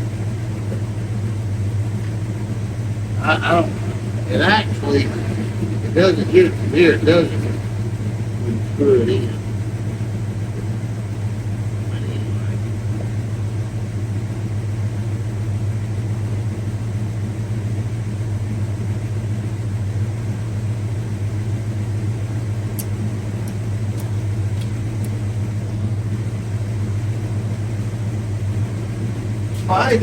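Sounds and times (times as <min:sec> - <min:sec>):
low mechanical hum: 0:00.0 - 0:30.0
faint light clicks: 0:22.7 - 0:25.2.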